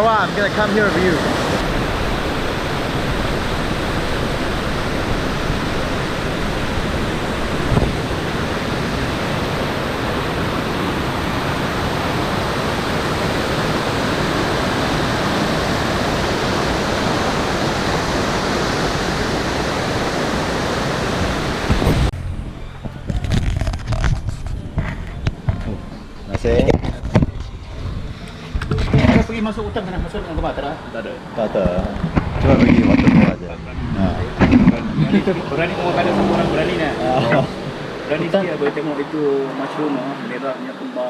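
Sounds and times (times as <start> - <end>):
waterfall rushing: 0.0 - 22.1, 32.2 - 41.0.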